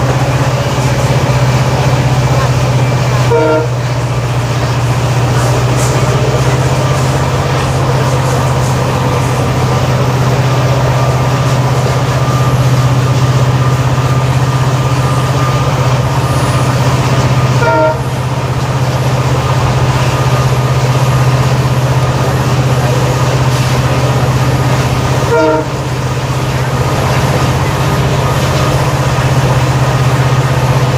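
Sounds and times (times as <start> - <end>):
diesel locomotive engine humming: 0.0 - 30.9
train running noise: 0.0 - 30.9
train horn toot: 2.3 - 4.4, 16.2 - 18.4, 25.1 - 26.6.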